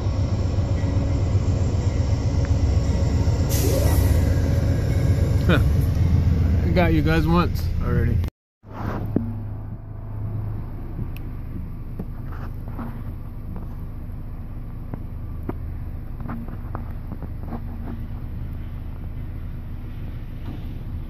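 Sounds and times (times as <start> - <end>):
freight train rumbling past: 0.0 - 8.3.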